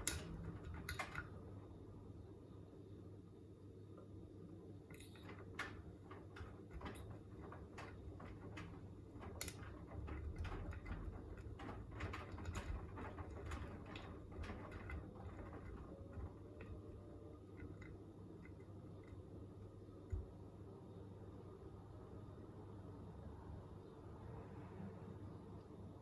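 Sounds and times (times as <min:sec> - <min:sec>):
washing machine hum: 0:00.0 - 0:26.0
washing drum clicks and knocks: 0:04.9 - 0:20.3.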